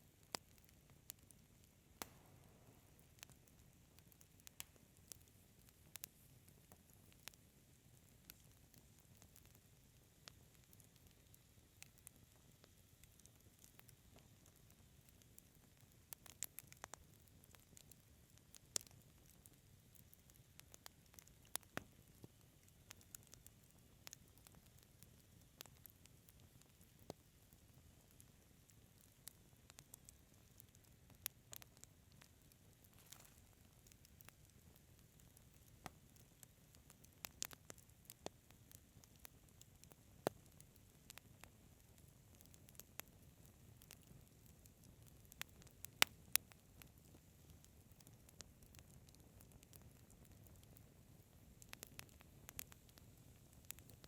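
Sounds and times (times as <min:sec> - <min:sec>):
low flame noise: 0:00.0 - 0:54.0
wood fire popping: 0:00.0 - 0:54.0.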